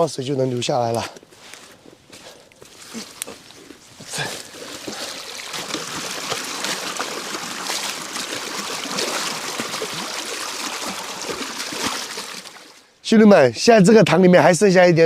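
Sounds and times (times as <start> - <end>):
water rushing stream: 3.8 - 13.0
water splash: 4.1 - 12.9.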